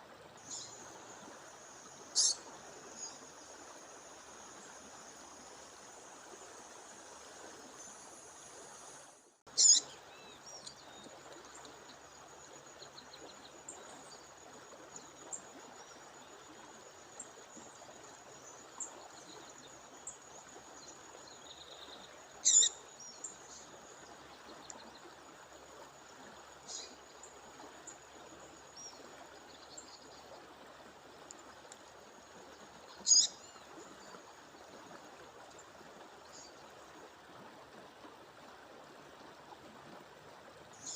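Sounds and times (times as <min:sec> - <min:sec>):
stream rushing: 0:00.0 - 0:21.3
bird chirps: 0:02.2 - 0:02.4, 0:09.6 - 0:09.8, 0:22.4 - 0:22.8, 0:33.1 - 0:33.3
bird sharp calls: 0:02.2 - 0:02.4, 0:09.6 - 0:09.9, 0:22.4 - 0:22.8, 0:33.1 - 0:33.3.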